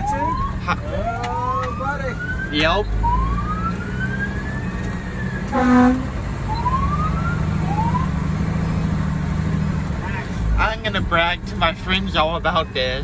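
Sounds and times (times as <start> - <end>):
fire engine siren: 0.0 - 8.8
horn blast: 5.5 - 6.2.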